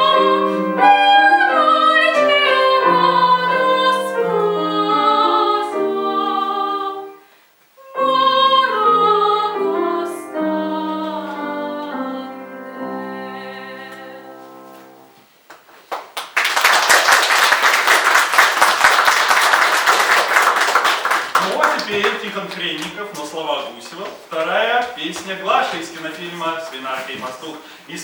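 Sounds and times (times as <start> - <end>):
person singing with piano: 0.0 - 7.2, 7.8 - 15.1
audience applause: 15.9 - 23.4.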